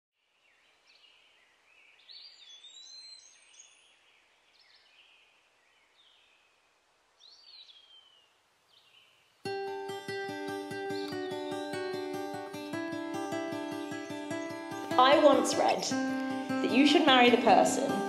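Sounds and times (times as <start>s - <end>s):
soft outdoor hiss: 0.2s - 18.0s
whistled bird calls: 2.2s - 4.0s.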